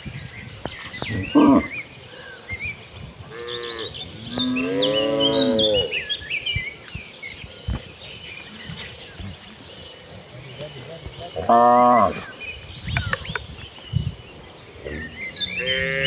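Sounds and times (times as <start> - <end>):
cows mooing: 1.1 - 1.7, 3.3 - 6.1, 11.4 - 12.3, 14.8 - 16.0.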